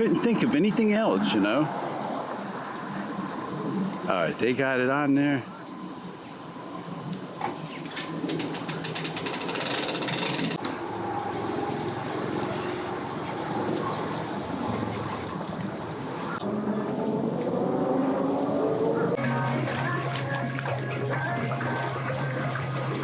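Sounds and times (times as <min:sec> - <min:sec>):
rattling clattering noise: 0:07.9 - 0:10.9
engine running: 0:10.5 - 0:19.6.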